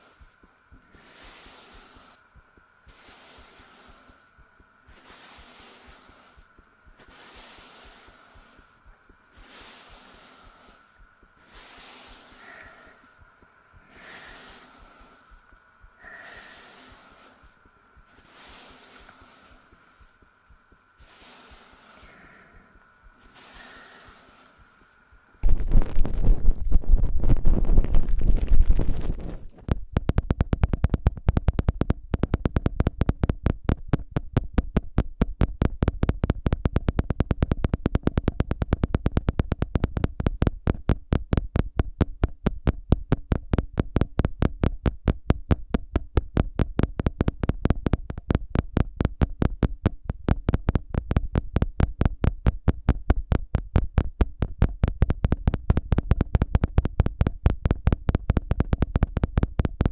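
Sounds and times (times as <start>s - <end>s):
ear pick strokes on microphone: 0.0s - 29.7s
low rumbling rub: 23.1s - 29.7s.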